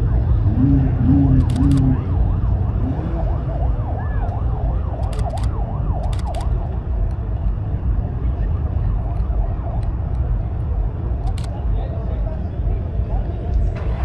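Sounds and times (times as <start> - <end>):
low rumble of engines: 0.0 - 14.0
wind: 0.0 - 14.0
siren yelping: 0.1 - 6.7
sharp clicks: 1.4 - 1.9, 5.0 - 7.2.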